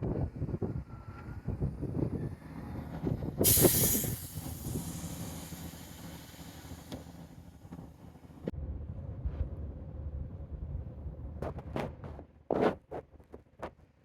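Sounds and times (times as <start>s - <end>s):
diesel engine rumbling: 0.0s - 11.4s
air brakes hissing: 3.4s - 7.9s.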